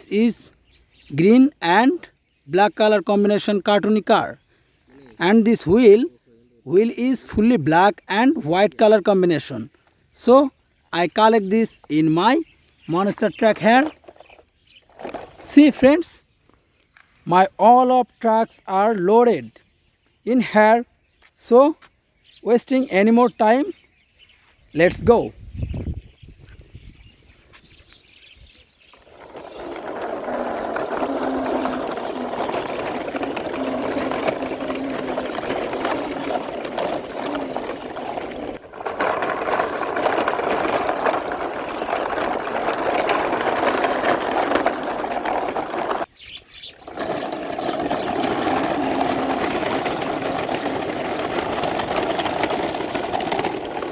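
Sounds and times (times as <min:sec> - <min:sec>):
toy truck motor whirring: 0:28.9 - 0:53.9.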